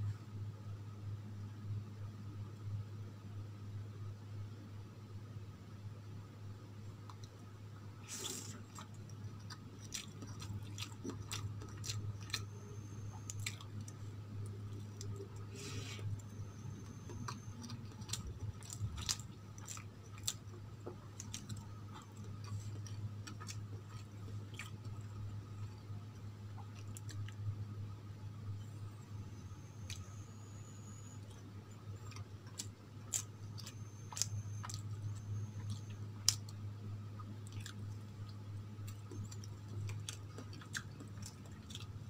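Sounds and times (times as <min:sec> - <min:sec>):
steady low hum: 0:00.0 - 0:42.0
wet chewing: 0:08.1 - 0:27.5, 0:31.2 - 0:42.0.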